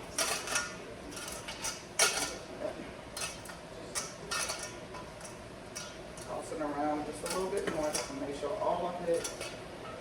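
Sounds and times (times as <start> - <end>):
dishes and utensils clinking: 0.0 - 2.4, 3.2 - 6.3, 9.1 - 10.0.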